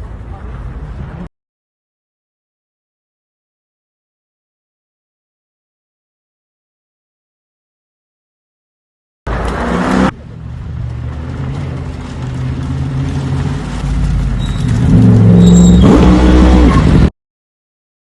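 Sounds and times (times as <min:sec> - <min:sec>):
car engine revving: 0:09.3 - 0:17.1.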